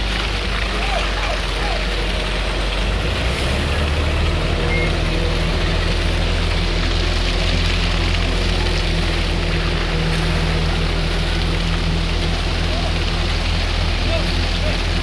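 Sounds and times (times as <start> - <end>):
heavy diesel truck engine running: 0.0 - 15.0.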